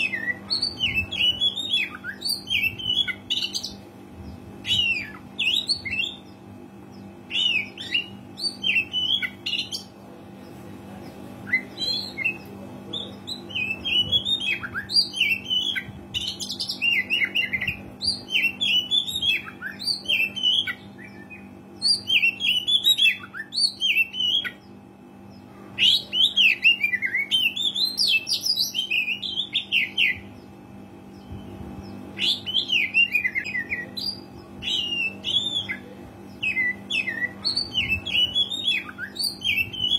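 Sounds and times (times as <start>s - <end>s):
faint low hum: 0.0s - 39.9s
bird singing whistled phrases: 32.2s - 39.9s.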